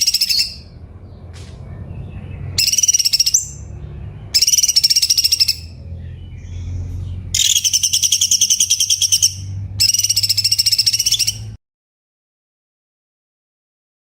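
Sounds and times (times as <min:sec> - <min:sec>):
bird song rattling high notes: 0:00.0 - 0:00.8, 0:02.5 - 0:11.6.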